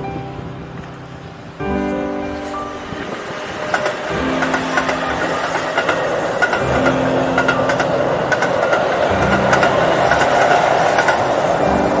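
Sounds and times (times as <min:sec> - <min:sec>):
train rolling rumble: 0:00.0 - 0:12.0.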